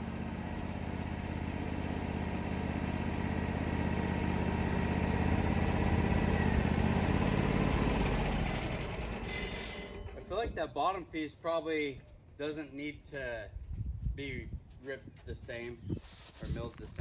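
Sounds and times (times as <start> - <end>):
sawmill engine running: 0.0 - 10.6.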